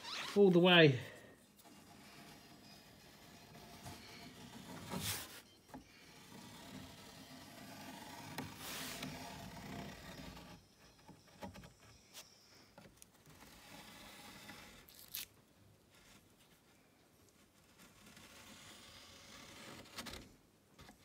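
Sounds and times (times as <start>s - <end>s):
pencil scraping along wood: 1.6s - 11.4s, 13.3s - 14.9s, 17.6s - 20.3s.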